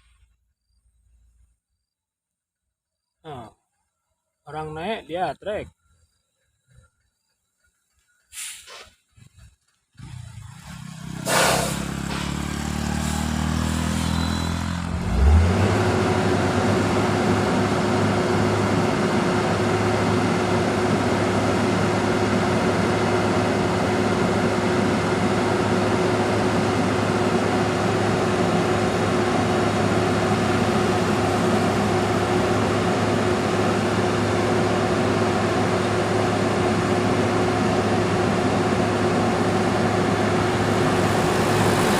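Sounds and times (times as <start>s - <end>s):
truck engine revving: 9.2s - 41.9s
constant whine: 16.0s - 41.9s.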